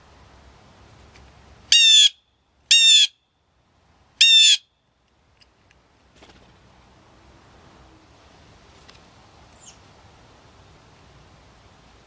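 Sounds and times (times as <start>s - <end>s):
bird squawking: 1.7s - 3.1s, 4.2s - 4.6s.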